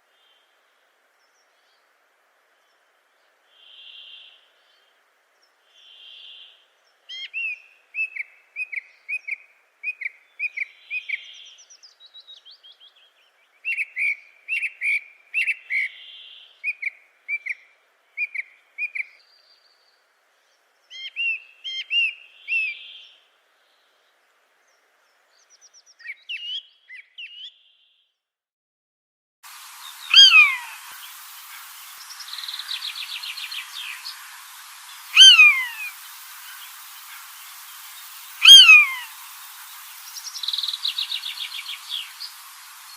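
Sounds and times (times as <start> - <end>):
bird chirps: 29.8 - 42.9
soft whistled bird note: 32.0 - 37.2, 38.0 - 39.1.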